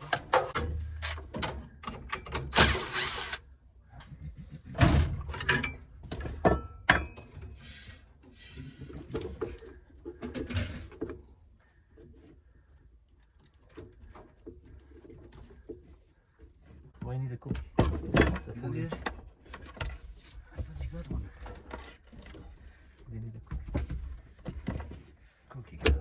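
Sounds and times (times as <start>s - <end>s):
tools knocking and clicking: 0.0s - 3.4s.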